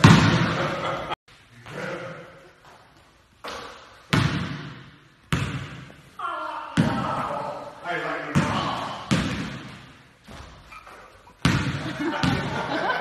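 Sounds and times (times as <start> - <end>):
basketball bouncing on gym court: 0.0 - 0.7, 3.4 - 6.0, 6.8 - 7.3, 8.3 - 12.7.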